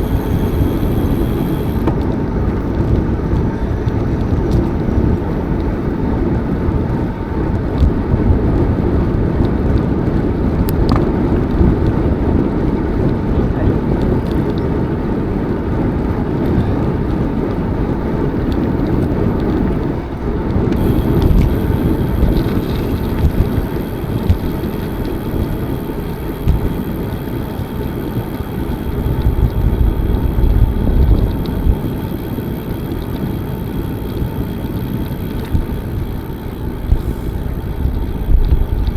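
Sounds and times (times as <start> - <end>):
faint high steady tone: 0.0 - 1.9, 20.8 - 38.9
bicycle tyre rumble: 0.0 - 38.9
wind on microphone: 0.0 - 38.9.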